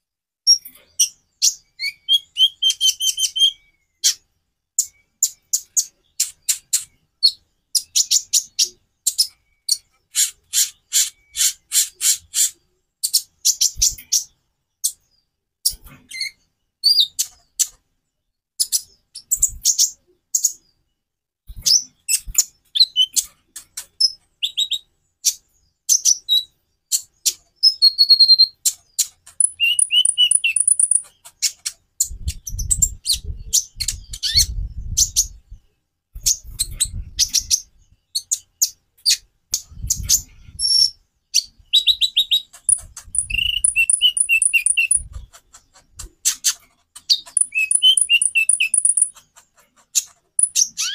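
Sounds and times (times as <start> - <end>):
bird singing sharp high chirps: 24.0 - 31.6, 36.2 - 45.2, 47.0 - 49.2, 50.4 - 50.9
buzzy bird trills: 29.0 - 31.8, 39.8 - 50.9.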